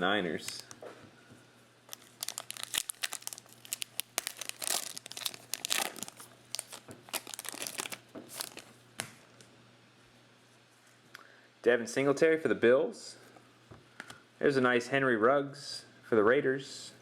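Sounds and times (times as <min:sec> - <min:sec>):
foil wrapper crinkling and tearing: 0:01.9 - 0:08.7.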